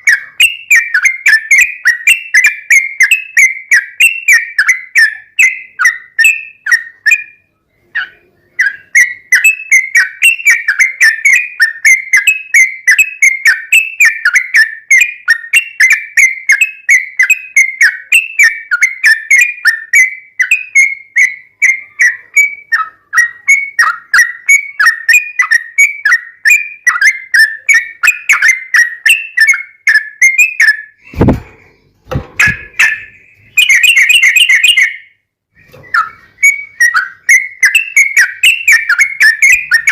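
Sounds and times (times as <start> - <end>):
loud thumps: 31.0 - 33.1
bird whistling rapid notes: 32.4 - 39.9.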